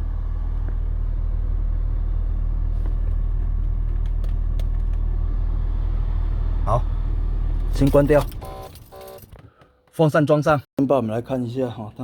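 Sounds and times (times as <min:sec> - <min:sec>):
car engine idling: 0:00.0 - 0:09.2.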